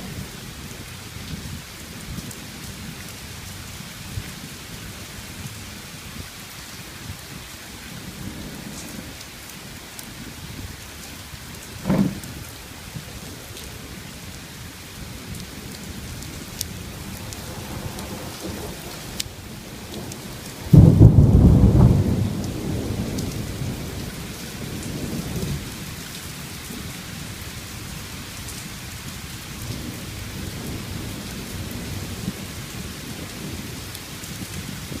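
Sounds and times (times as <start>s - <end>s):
steady rain: 0.0s - 35.0s
thunder rumbling: 8.0s - 14.1s, 15.1s - 25.7s.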